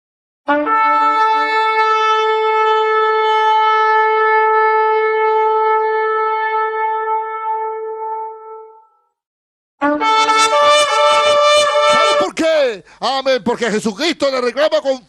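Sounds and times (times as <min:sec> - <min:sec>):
shofar blast: 0:00.5 - 0:08.9, 0:09.8 - 0:12.4.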